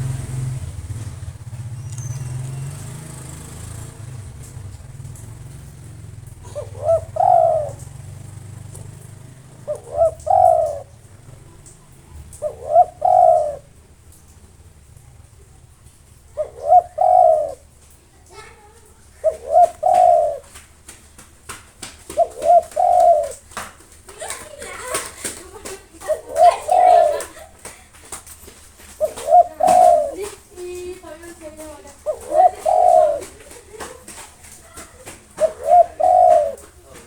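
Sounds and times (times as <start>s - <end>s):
dove cooing: 0.0s - 20.9s, 22.0s - 37.0s.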